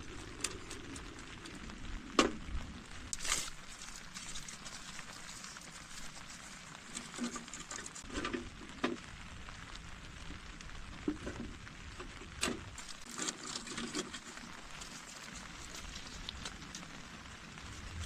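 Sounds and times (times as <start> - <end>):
rain pattering: 0.0 - 18.0.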